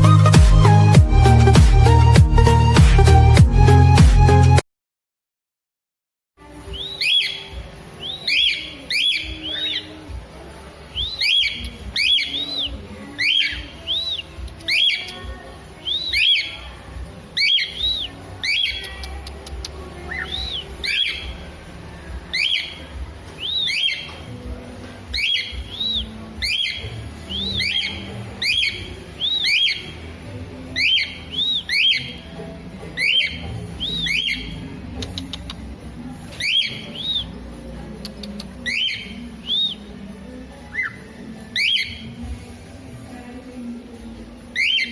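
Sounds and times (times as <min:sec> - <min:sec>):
bird whistling: 0:06.7 - 0:10.1, 0:10.9 - 0:16.7, 0:17.4 - 0:21.6, 0:22.3 - 0:24.4, 0:25.1 - 0:30.1, 0:30.7 - 0:32.3, 0:32.9 - 0:35.5, 0:36.3 - 0:37.4, 0:38.3 - 0:40.0, 0:40.7 - 0:42.2, 0:44.5 - 0:44.9.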